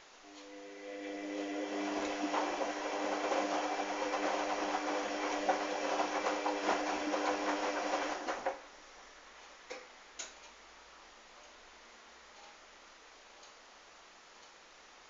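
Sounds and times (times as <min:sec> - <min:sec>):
washing machine drum turning: 0:00.9 - 0:08.6.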